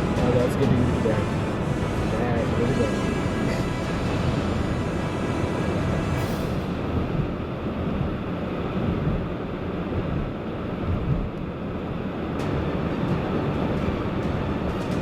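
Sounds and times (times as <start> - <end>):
car driving rumble: 0.0 - 15.0
wind noise: 5.7 - 15.0.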